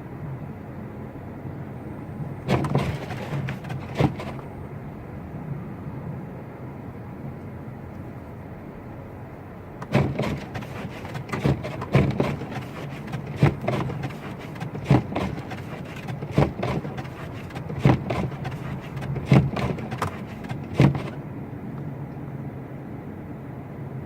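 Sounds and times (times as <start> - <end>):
car engine running: 2.5 - 4.6, 9.8 - 21.2
windshield wipers swishing: 2.5 - 4.6, 9.8 - 21.2.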